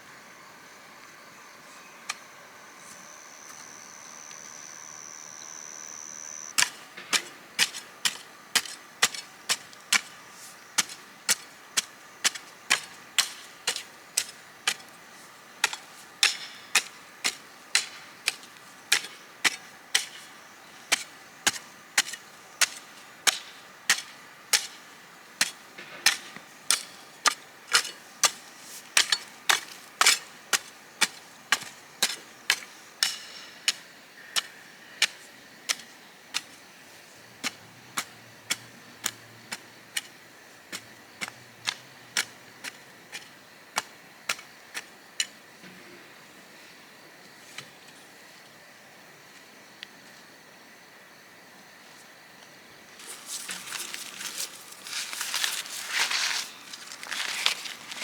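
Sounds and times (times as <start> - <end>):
hand tool striking: 15.6 - 20.2, 29.0 - 33.8.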